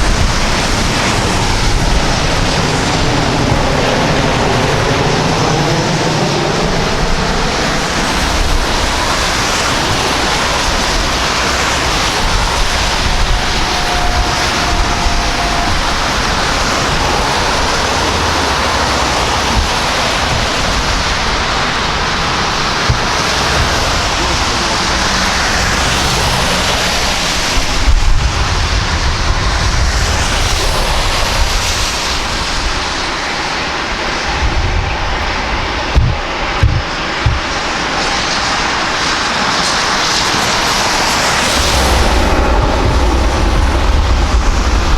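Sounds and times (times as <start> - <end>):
thin whine: 0.0 - 28.9
jet engines running: 0.0 - 44.9.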